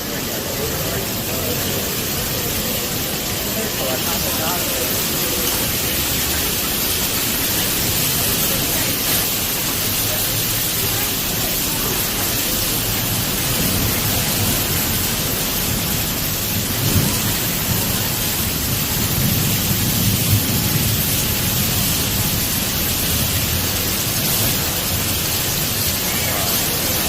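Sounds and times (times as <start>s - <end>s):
heavy rain and wind: 0.0s - 27.0s
low thunder rumbling: 10.7s - 27.0s.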